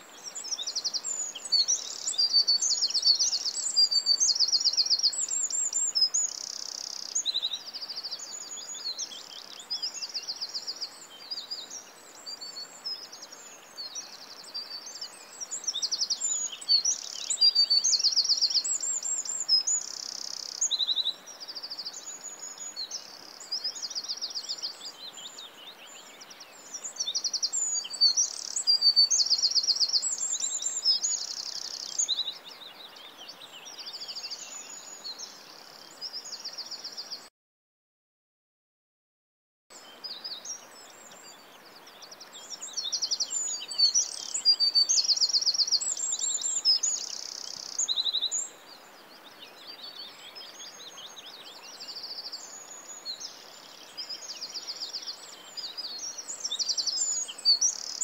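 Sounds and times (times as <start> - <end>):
faint steady hiss: 0.0 - 37.3, 39.7 - 58.0
birds singing and trilling: 0.2 - 37.3, 39.8 - 58.0.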